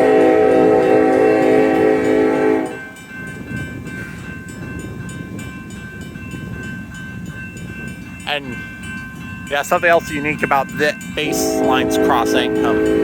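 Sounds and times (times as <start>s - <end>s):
locomotive horn: 0.0s - 2.9s, 11.2s - 13.0s
crossing bells ringing: 0.0s - 13.0s
freight train rumbling: 0.0s - 13.0s.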